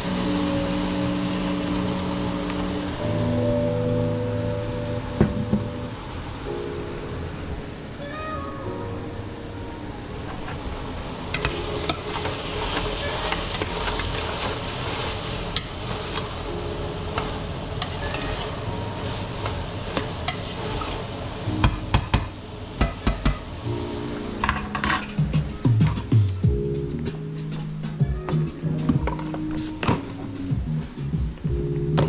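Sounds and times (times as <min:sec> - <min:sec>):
food sizzling in a pot: 0:00.0 - 0:06.3, 0:11.1 - 0:25.8.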